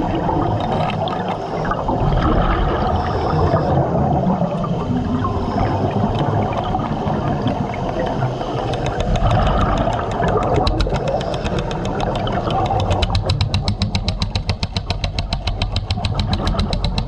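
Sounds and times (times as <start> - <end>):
underwater drill rumbling: 0.0 - 17.0
rapid hammering strikes: 8.7 - 17.0.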